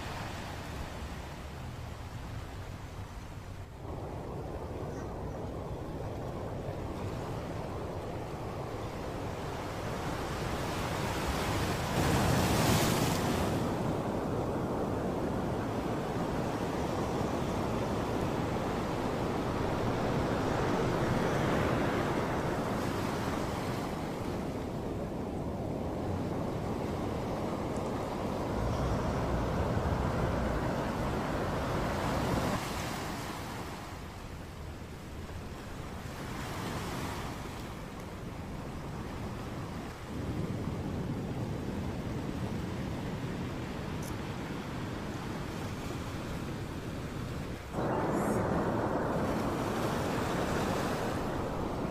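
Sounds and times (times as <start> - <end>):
wind buffeting microphone: 0.0 - 51.9
ocean surf breaking: 3.8 - 34.3, 44.7 - 51.9.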